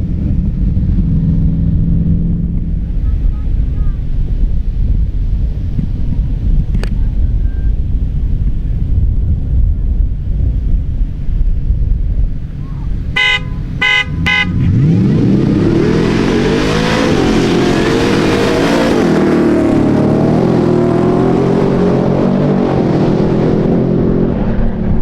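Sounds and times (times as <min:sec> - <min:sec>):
truck engine revving hard: 0:13.0 - 0:24.8
short horn toots: 0:13.2 - 0:14.8.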